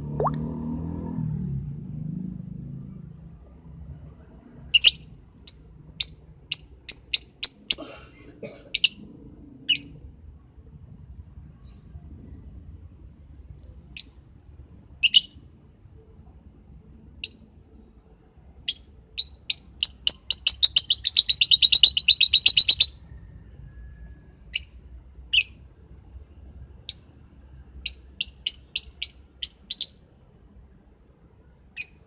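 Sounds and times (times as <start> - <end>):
bird chirping: 18.6 - 23.1, 31.7 - 32.0.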